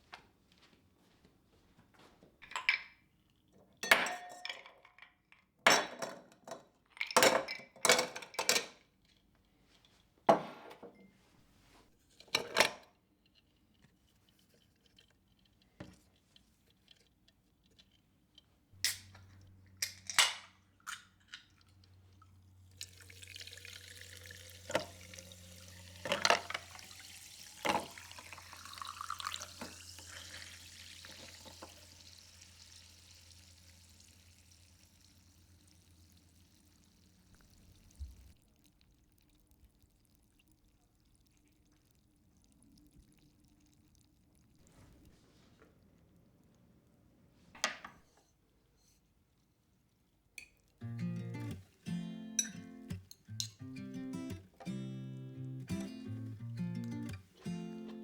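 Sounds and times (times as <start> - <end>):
dishes and cutlery clinking: 3.8 - 9.1, 12.2 - 13.0, 52.3 - 54.4.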